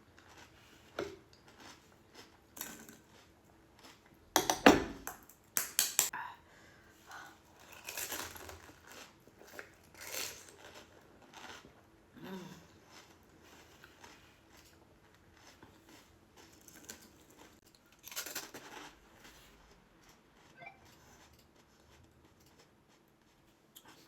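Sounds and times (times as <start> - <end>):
crisp shells crunching while chewing: 0.1 - 4.3, 7.5 - 11.9, 12.6 - 20.5.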